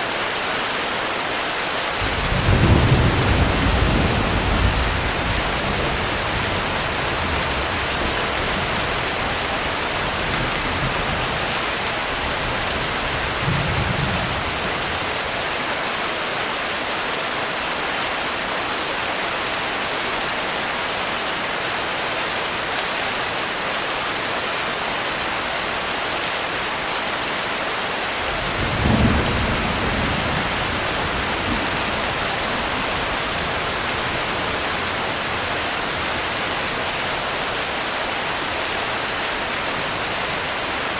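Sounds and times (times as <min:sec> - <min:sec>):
steady rain: 0:00.0 - 0:40.9
thunder rumbling: 0:02.0 - 0:11.5, 0:28.2 - 0:36.9.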